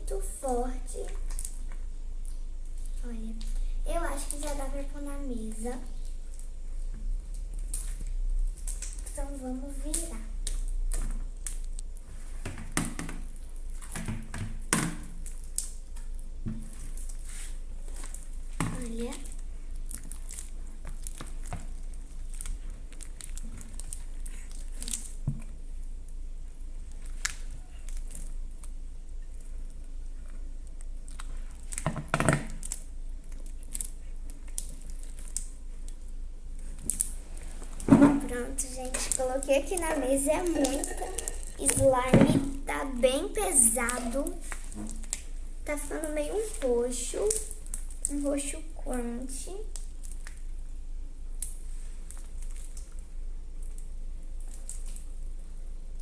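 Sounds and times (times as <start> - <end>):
slime squelching: 0.0 - 56.0
slime sticky clicks and pops: 36.8 - 37.2.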